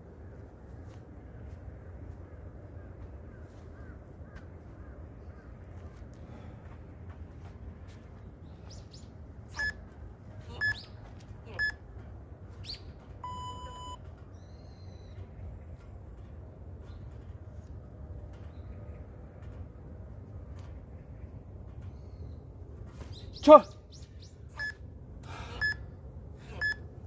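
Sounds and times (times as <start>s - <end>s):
timer short beeps: 9.5s - 9.8s, 10.5s - 10.9s, 11.5s - 11.8s, 13.2s - 14.0s, 24.5s - 24.8s, 25.6s - 25.8s, 26.5s - 26.8s.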